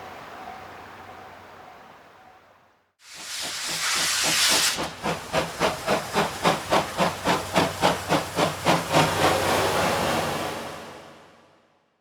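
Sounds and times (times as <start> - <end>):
steam locomotive chuffing: 3.1 - 11.0.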